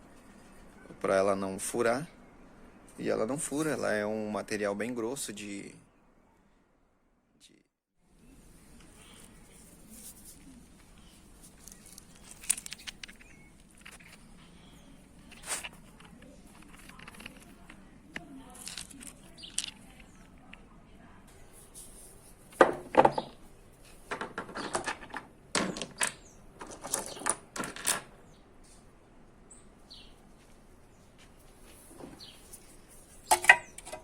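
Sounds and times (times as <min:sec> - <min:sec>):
small hard objects clinking: 0:11.4 - 0:14.4, 0:15.1 - 0:20.6.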